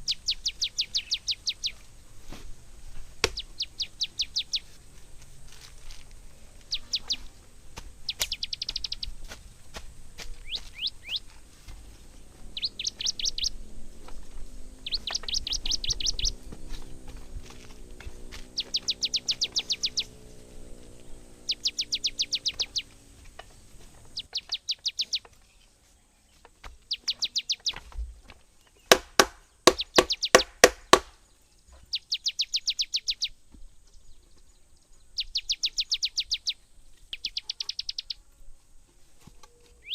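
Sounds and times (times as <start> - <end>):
small bird trilling chirps: 0.0 - 1.8, 3.2 - 4.8, 6.6 - 7.3, 8.1 - 9.2, 10.4 - 11.3, 12.5 - 13.6, 14.8 - 16.9, 18.5 - 25.7, 26.3 - 27.9, 29.5 - 30.6, 31.2 - 38.2
sharp knocks: 3.2 - 3.5, 28.9 - 31.2.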